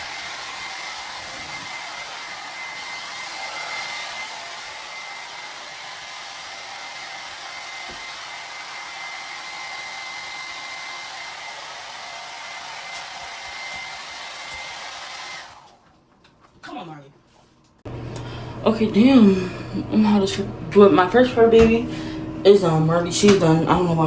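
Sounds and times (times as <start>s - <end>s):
hair dryer blowing: 0.0s - 15.8s.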